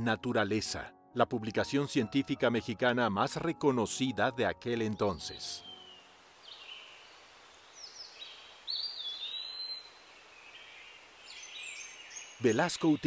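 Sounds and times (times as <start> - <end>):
birds whistling and chirping: 5.1 - 6.9, 7.8 - 10.0, 10.6 - 13.0.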